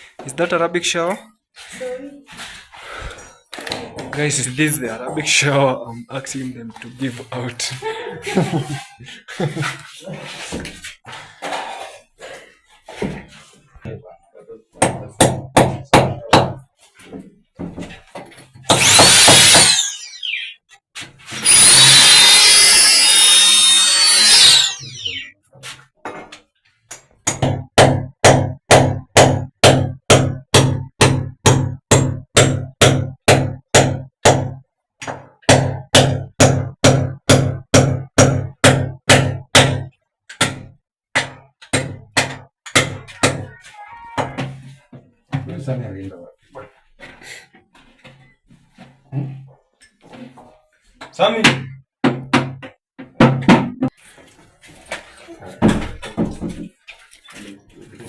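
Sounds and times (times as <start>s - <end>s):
power drill whining: 18.7s - 20.6s, 21.4s - 25.3s.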